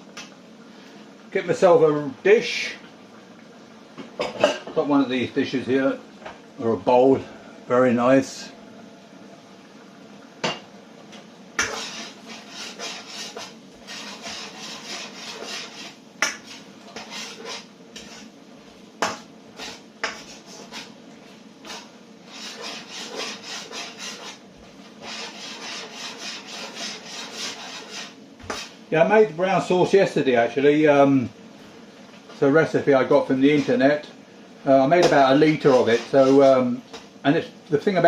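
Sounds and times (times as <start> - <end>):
spatula scraping a pan: 11.6 - 18.4, 19.0 - 21.0, 21.6 - 28.8, 33.1 - 34.0, 35.0 - 36.7.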